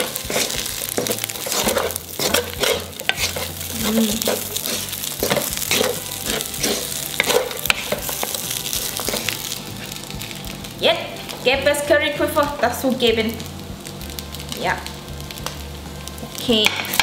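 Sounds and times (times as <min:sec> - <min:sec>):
utensil scraping and knocking a pan: 0:00.0 - 0:09.4
fried rice sizzling in a pan: 0:00.0 - 0:17.0.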